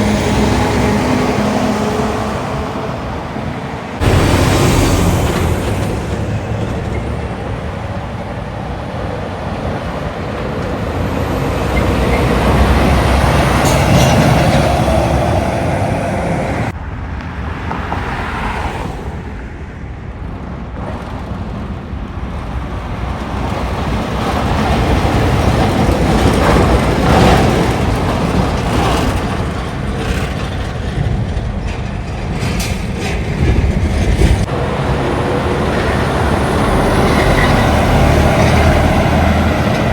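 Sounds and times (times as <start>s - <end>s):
trucks driving past: 0.0s - 39.9s.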